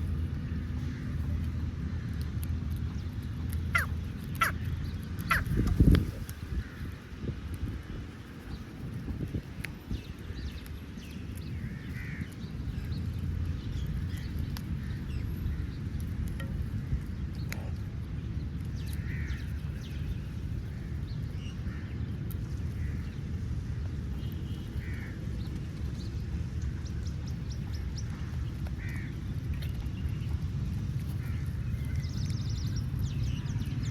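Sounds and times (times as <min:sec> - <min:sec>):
low outdoor rumble: 0:00.0 - 0:33.9
crows cawing: 0:03.7 - 0:04.6, 0:05.3 - 0:05.5, 0:11.7 - 0:12.3, 0:19.0 - 0:19.4, 0:28.8 - 0:29.2.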